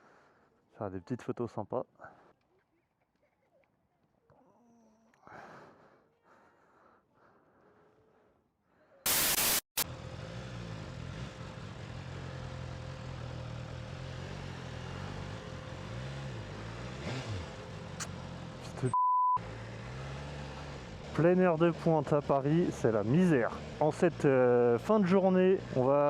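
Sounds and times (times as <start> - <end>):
loud burst of noise: 9.1 - 9.8
motorcycle engine at low revs: 9.8 - 26.0
short high beep: 18.9 - 19.4.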